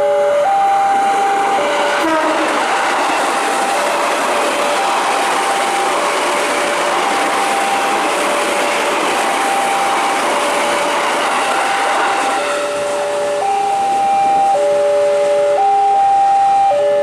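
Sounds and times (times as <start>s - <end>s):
train wheel and rail noise: 0.0s - 17.0s
two-tone crossing alarm: 0.0s - 17.0s
train horn chord: 2.0s - 2.9s.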